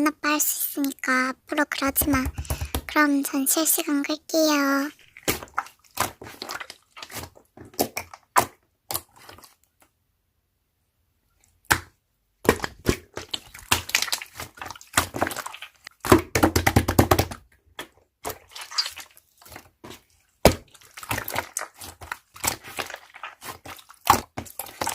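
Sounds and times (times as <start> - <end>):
slime squished by hand: 5.0 - 9.8, 11.6 - 24.9.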